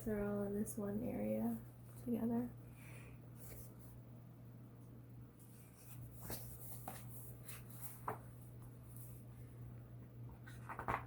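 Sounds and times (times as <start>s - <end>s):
steady low hum: 0.0s - 11.0s
book pages rustling: 5.4s - 9.3s, 10.4s - 11.0s.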